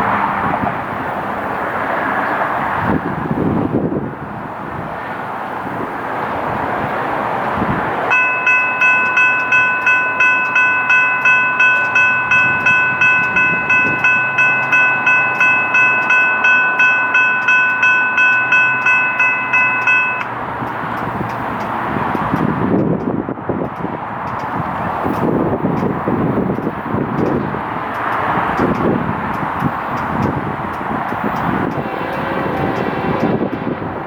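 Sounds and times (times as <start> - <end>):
passing train: 0.0 - 34.0
railroad crossing bell ringing: 8.1 - 22.5, 23.7 - 34.0.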